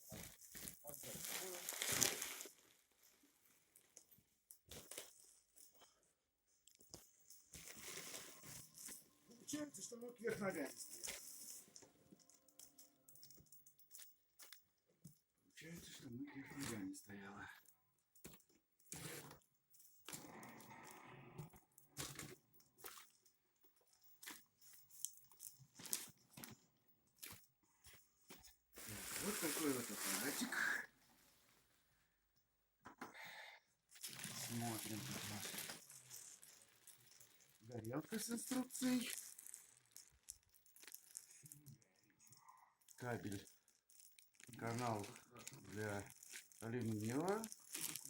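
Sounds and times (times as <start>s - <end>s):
packaging rustling and crunching: 0.0s - 3.1s, 7.6s - 8.8s, 28.8s - 31.5s, 34.0s - 41.5s, 44.0s - 48.0s
crackles and clicks: 33.9s - 41.8s.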